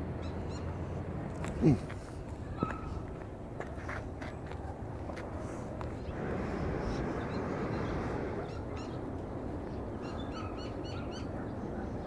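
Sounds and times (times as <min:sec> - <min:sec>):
low rushing noise: 0:04.8 - 0:10.0.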